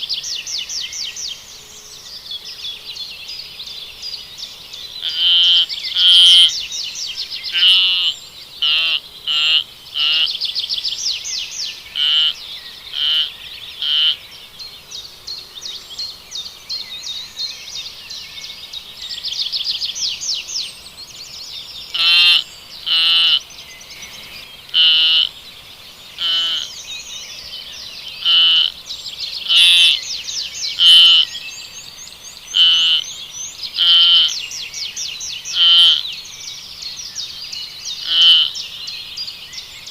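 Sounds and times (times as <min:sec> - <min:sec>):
high-pitched wavering animal calls: 0:05.0 - 0:06.6, 0:22.0 - 0:23.4, 0:24.7 - 0:25.3, 0:26.2 - 0:26.7, 0:28.2 - 0:28.7, 0:29.4 - 0:30.0, 0:30.7 - 0:31.3, 0:32.5 - 0:33.0, 0:33.7 - 0:34.4, 0:35.5 - 0:36.0, 0:38.0 - 0:38.6.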